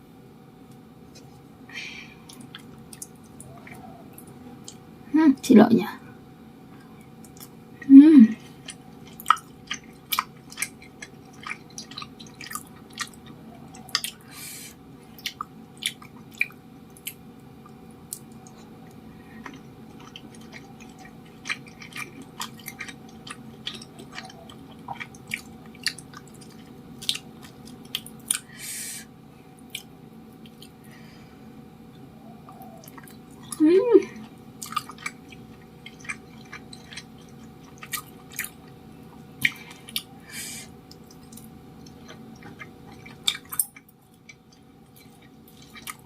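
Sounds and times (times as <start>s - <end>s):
close chewing with wet clicks: 2.3s - 4.8s, 6.8s - 7.6s, 8.5s - 14.3s, 15.1s - 28.5s, 29.6s - 30.8s, 31.9s - 33.6s, 34.2s - 40.2s, 40.8s - 46.0s.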